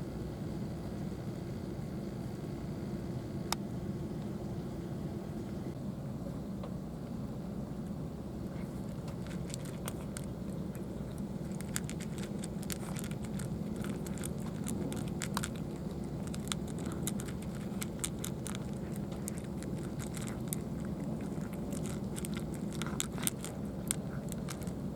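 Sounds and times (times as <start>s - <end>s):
cat crunching dry food: 8.4s - 24.9s.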